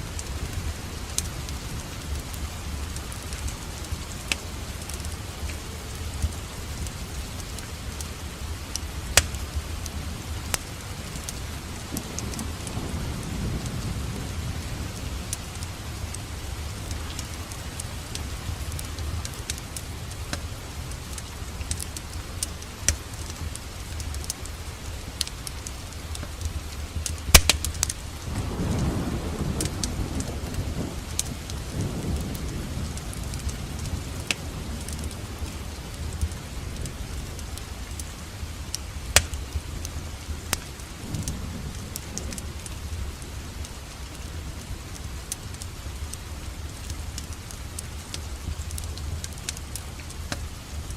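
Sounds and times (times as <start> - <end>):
wood fire crackling and popping: 0.0 - 12.8, 16.8 - 28.8, 29.5 - 38.1, 38.7 - 42.8, 43.6 - 50.9
steady rain: 0.0 - 50.9
low thunder rumbling: 7.8 - 20.0, 27.2 - 37.4, 40.9 - 43.7.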